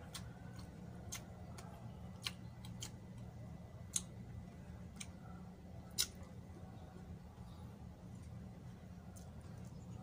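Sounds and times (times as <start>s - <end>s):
person chewing food: 0.0s - 6.6s
steady low hum: 0.0s - 10.0s
sharp mouth smacks and clicks: 5.9s - 6.2s.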